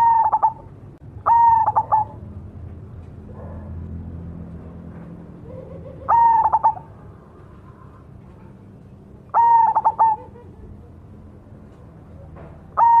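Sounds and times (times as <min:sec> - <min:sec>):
dove cooing: 0:00.0 - 0:02.3, 0:05.4 - 0:08.6, 0:09.3 - 0:11.0, 0:12.2 - 0:13.0.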